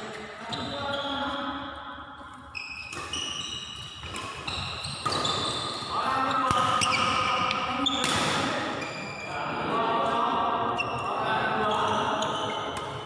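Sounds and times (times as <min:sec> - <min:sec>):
shoes squeaking on court floor: 0:00.4 - 0:09.3, 0:10.8 - 0:13.0
racket hitting shuttlecock: 0:02.8 - 0:05.8, 0:06.4 - 0:08.8, 0:12.7 - 0:13.0.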